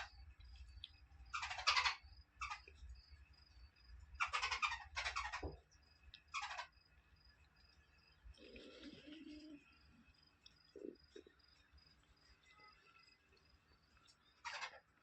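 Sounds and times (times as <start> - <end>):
faint high chirping: 0.0 - 15.0
chicks harsh rasping calls: 1.3 - 2.7, 4.2 - 5.6, 14.4 - 14.9.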